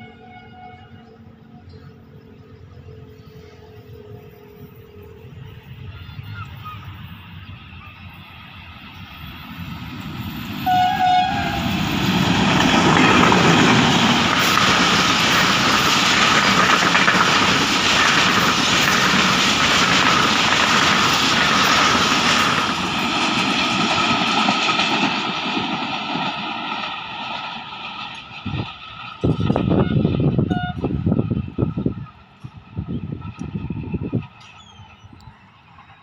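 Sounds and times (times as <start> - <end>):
train horn blast: 0.0 - 1.2, 10.6 - 11.9, 29.7 - 31.0
diesel locomotive passing: 0.0 - 36.0
train wheels clattering over track: 9.4 - 36.0.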